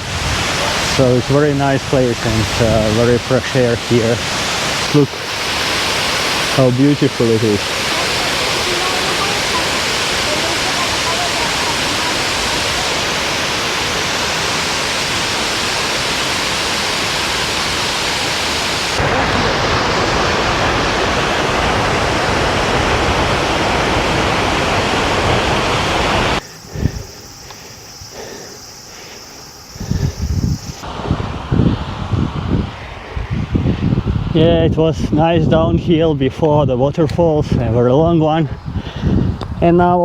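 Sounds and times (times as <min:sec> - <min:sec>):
waterfall roaring: 0:00.0 - 0:26.4.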